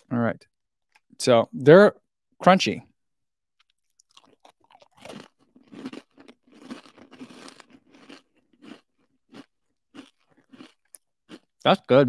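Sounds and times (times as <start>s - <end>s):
person crunching granola bar: 3.6s - 11.6s.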